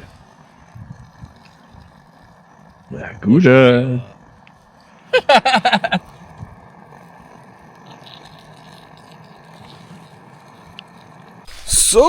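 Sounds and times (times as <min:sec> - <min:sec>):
steady background noise: 0:00.0 - 0:12.0
person exclaiming: 0:05.2 - 0:06.0.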